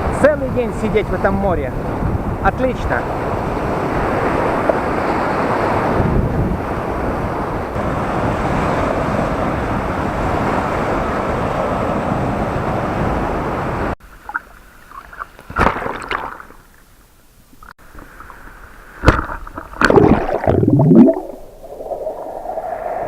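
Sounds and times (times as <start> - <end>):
wind buffeting microphone: 0.0 - 14.0
surf washing onto beach: 0.0 - 14.4, 17.9 - 23.0.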